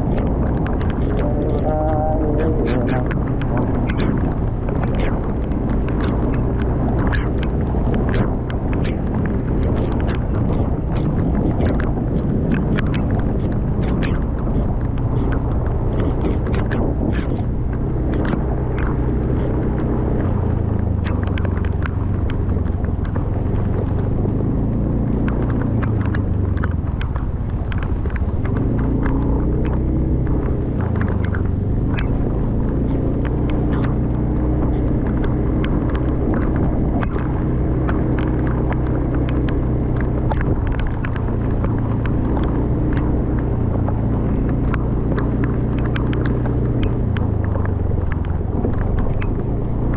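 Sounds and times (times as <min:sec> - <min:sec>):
sharp taps: 0:00.0 - 0:24.4, 0:25.0 - 0:49.9
loud low drone: 0:00.0 - 0:27.4.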